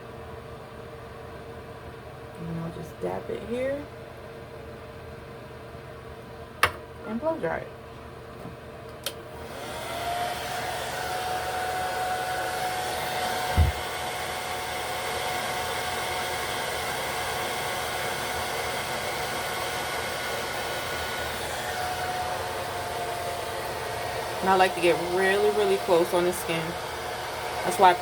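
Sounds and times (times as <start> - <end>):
hair dryer blowing with a whine: 9.1 - 28.0
loud thump: 13.5 - 13.8.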